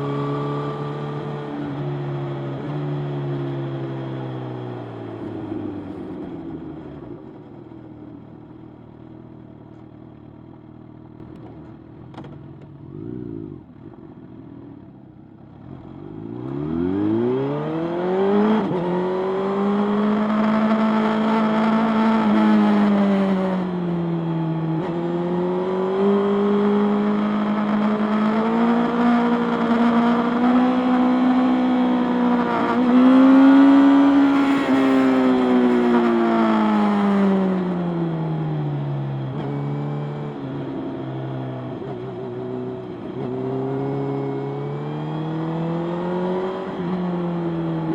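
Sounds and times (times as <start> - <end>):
motorcycle engine revving: 12.2 - 14.0, 15.6 - 47.9.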